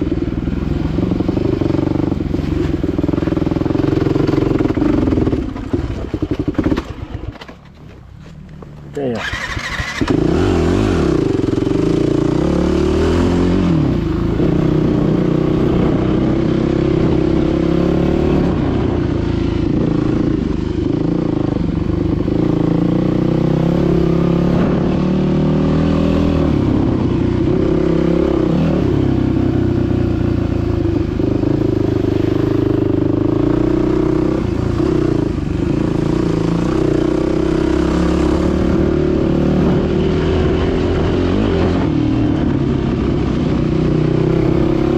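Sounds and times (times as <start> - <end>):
dirt bike engine revving: 9.0 - 44.9.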